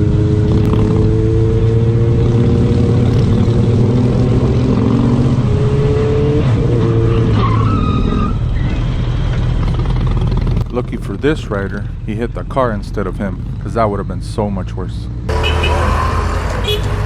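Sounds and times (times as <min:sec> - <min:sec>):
motorcycle engine running: 0:00.0 - 0:05.2, 0:09.3 - 0:11.0.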